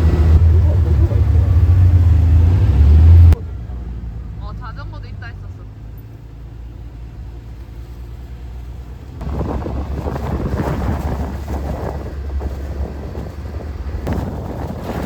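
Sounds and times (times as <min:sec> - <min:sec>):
vehicle rumble: 0:00.0 - 0:15.0
wind buffeting microphone: 0:09.1 - 0:15.0.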